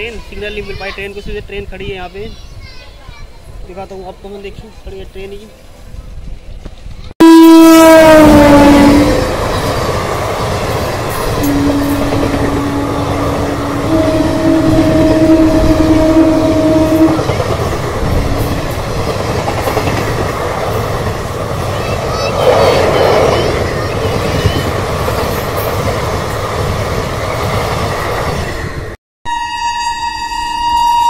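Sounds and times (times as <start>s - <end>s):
train rumble and clickety-clack: 0.0s - 7.1s, 8.0s - 29.0s
train horn blasts: 7.2s - 9.4s, 11.3s - 17.6s, 29.3s - 31.0s.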